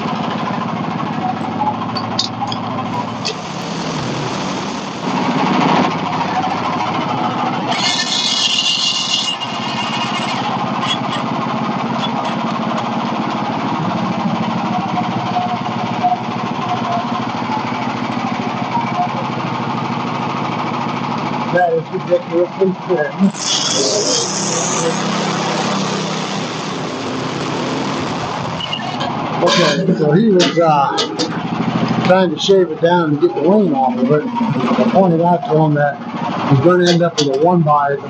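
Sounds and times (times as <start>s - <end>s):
band sawmill cutting log: 2.7s - 18.7s, 23.3s - 32.5s
high hissing burst: 2.9s - 5.4s, 7.7s - 12.5s, 23.3s - 29.8s.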